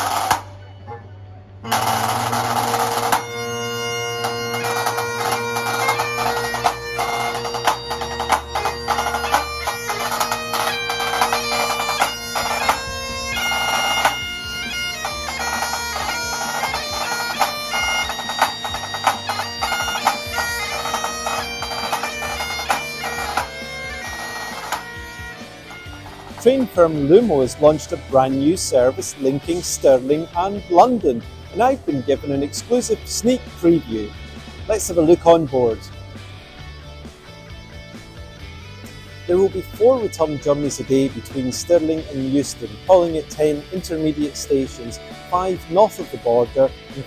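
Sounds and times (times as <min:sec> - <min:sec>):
low bass line: 0:00.0 - 0:21.1
bagpipe music: 0:00.0 - 0:47.0.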